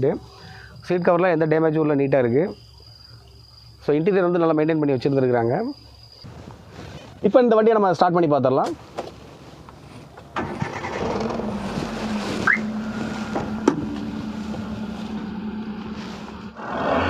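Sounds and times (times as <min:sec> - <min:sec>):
car engine starting and idling: 0:10.2 - 0:17.0.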